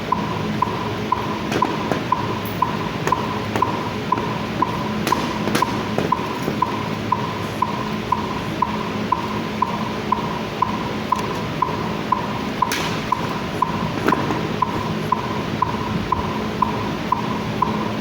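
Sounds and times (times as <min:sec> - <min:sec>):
steady background hum: 0:00.0 - 0:18.0
metronome click beat: 0:00.1 - 0:18.0
sharp slap: 0:05.0 - 0:06.7, 0:12.7 - 0:13.3.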